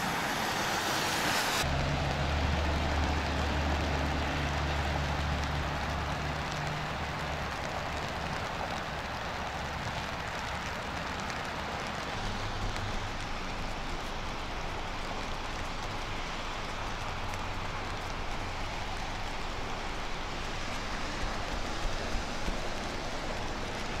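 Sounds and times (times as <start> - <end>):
steady rain falling: 0.0 - 24.0
low rumble: 12.2 - 24.0.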